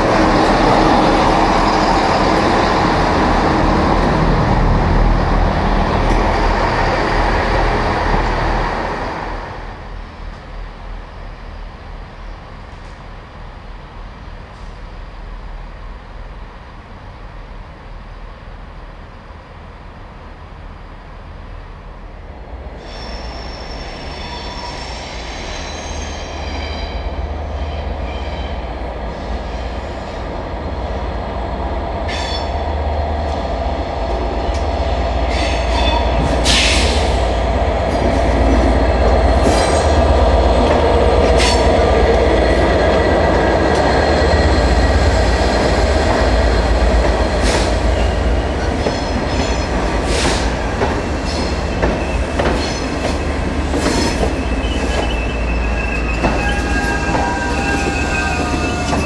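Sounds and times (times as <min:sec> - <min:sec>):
train rumbling past: 0:00.0 - 0:59.0
wheels squealing on rails: 0:22.8 - 0:30.3, 0:35.1 - 0:59.0.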